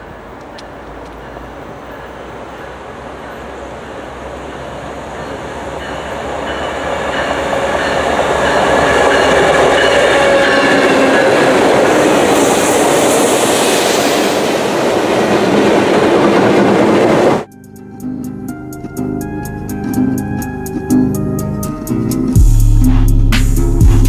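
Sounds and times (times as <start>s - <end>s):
train wheels on rails: 0.0s - 17.5s
diesel locomotive engines: 0.0s - 22.4s.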